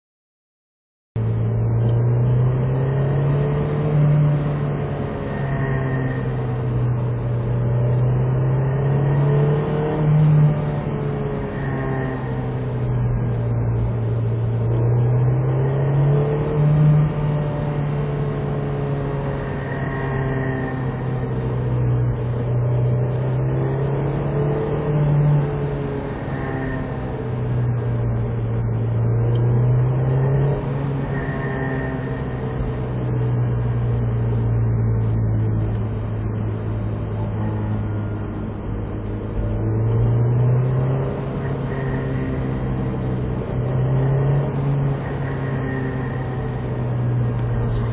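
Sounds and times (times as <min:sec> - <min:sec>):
car engine running: 0:01.2 - 0:47.9.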